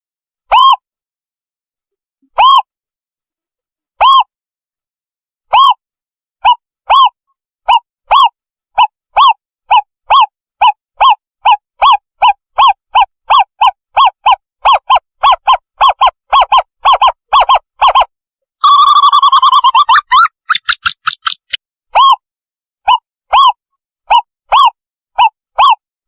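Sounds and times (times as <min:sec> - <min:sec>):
owlet whistled hoots: 0:02.4 - 0:02.7, 0:04.0 - 0:04.3, 0:05.5 - 0:05.8, 0:06.4 - 0:22.2.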